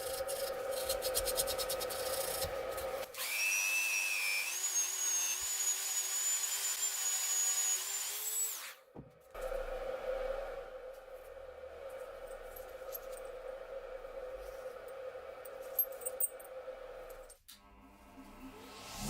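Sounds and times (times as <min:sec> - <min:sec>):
electric drill whining: 0:00.7 - 0:08.8
steady hum: 0:09.4 - 0:17.4.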